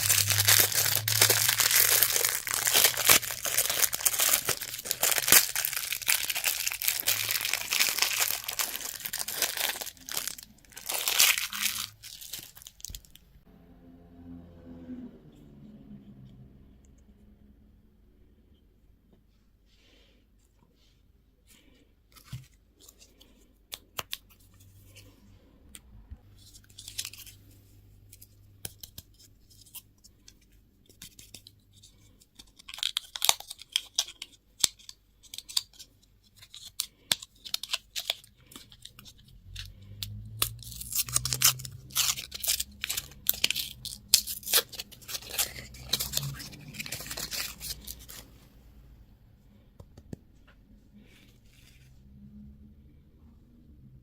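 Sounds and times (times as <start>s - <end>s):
plastic packaging crinkling and tearing: 0.0s - 13.2s, 26.4s - 27.5s, 31.1s - 48.4s.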